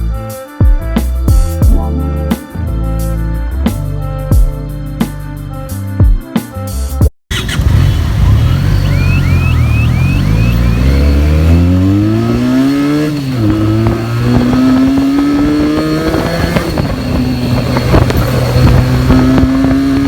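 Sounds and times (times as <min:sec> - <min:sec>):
motorcycle engine accelerating: 0:07.3 - 0:20.0.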